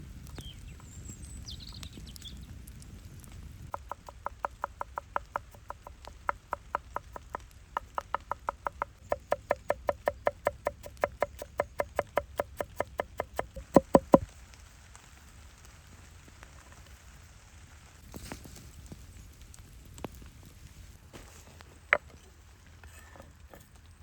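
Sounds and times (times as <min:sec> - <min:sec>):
knife chopping on wooden board: 0:03.8 - 0:14.2.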